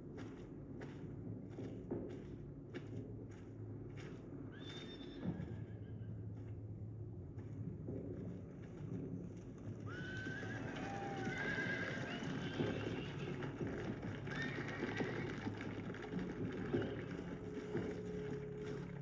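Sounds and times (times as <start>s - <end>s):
hooves clattering: 7.4s - 19.0s
horses neighing: 9.9s - 13.4s, 14.3s - 15.6s.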